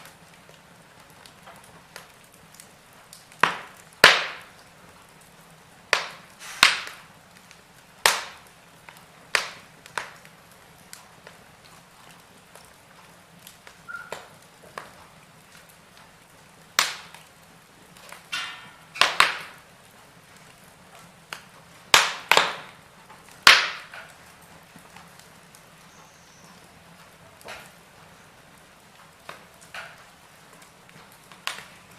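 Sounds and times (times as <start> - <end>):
fireplace fire crackling and popping: 0.0 - 31.9
short hiss: 6.4 - 6.8.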